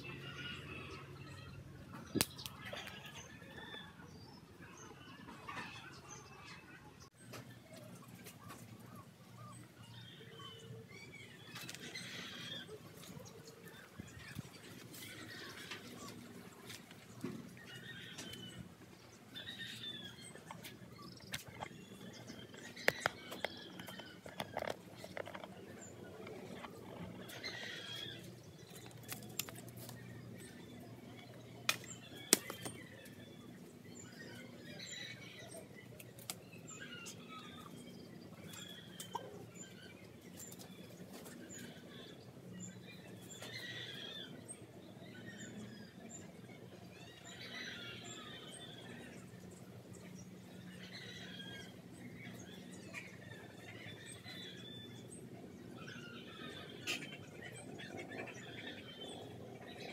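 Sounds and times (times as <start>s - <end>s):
small birds chirping: 0.0s - 59.9s
steady low hum: 0.0s - 59.9s.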